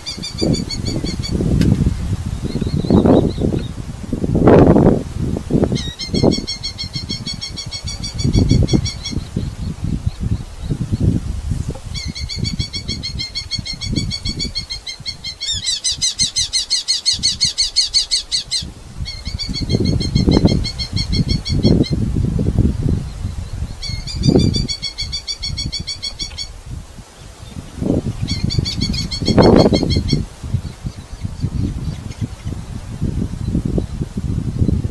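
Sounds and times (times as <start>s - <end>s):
falcons calling shrilly: 11.9s - 22.0s, 23.8s - 26.6s.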